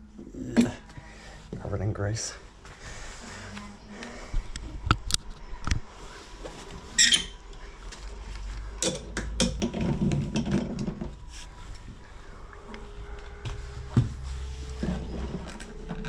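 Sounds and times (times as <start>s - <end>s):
tools clicking and knocking: 8.8s - 11.1s.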